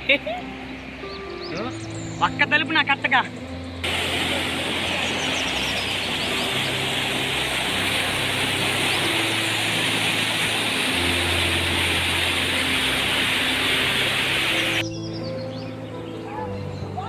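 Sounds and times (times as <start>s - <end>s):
low sustained musical notes: 0.0s - 17.0s
loud rushing noise: 3.8s - 14.8s.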